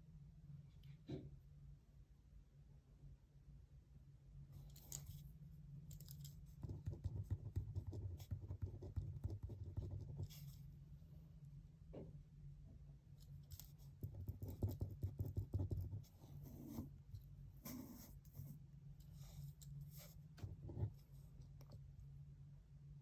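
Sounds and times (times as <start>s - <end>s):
pen writing on paper: 14.0s - 16.9s, 17.6s - 18.1s.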